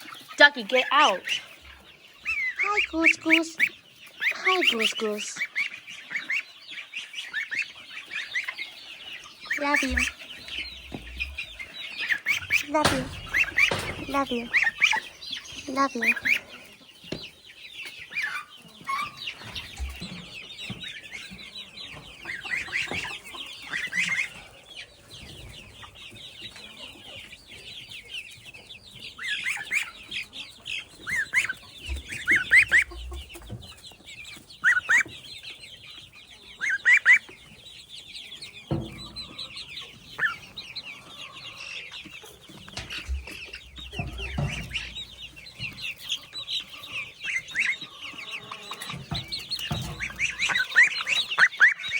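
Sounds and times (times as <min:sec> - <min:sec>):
chicks peeping: 0:00.0 - 0:51.9
low thumps: 0:42.8 - 0:45.9.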